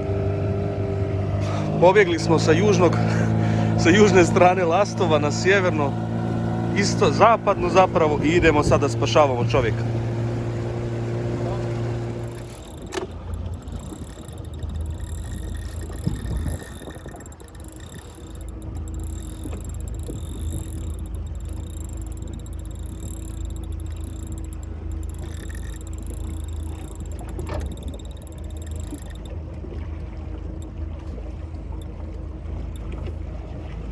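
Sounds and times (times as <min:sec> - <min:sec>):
motorboat engine drone: 0:00.0 - 0:33.9
water rushing: 0:00.0 - 0:33.9.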